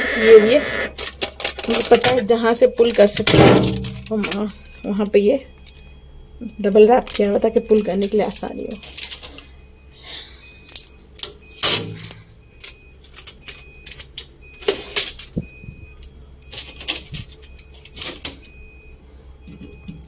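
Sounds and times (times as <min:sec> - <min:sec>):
packing tape ripping off plastic: 0:00.1 - 0:02.1, 0:11.2 - 0:15.4.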